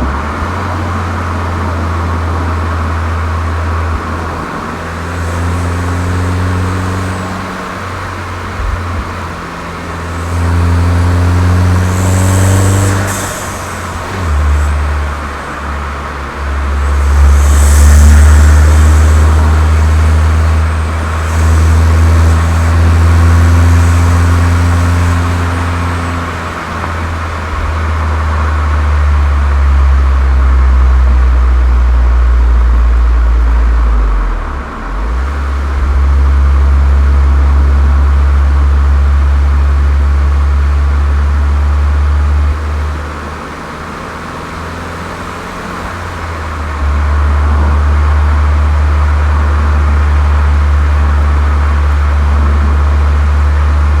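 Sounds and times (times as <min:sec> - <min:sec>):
car engine pulling under load: 0:00.0 - 0:54.0.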